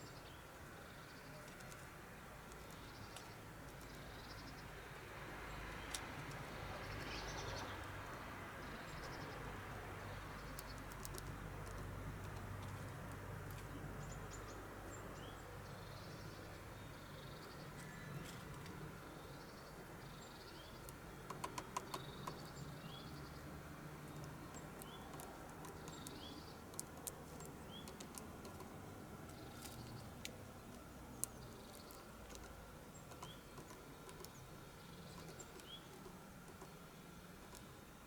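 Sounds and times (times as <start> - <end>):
bird pecking at seed: 1.4 - 4.2, 10.0 - 13.8, 20.6 - 38.0.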